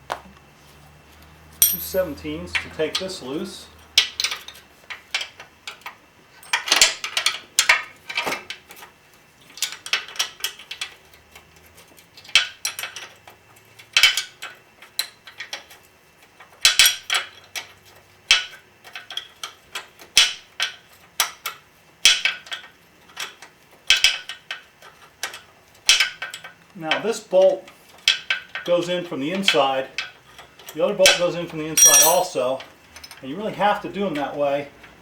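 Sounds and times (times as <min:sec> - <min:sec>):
wrenches clinking on metal: 0:01.6 - 0:03.2, 0:18.3 - 0:34.4.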